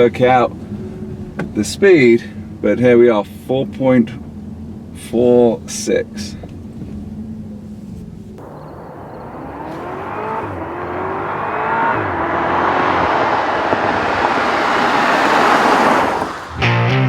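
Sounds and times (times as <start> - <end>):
car engine accelerating hard: 8.4 - 16.8.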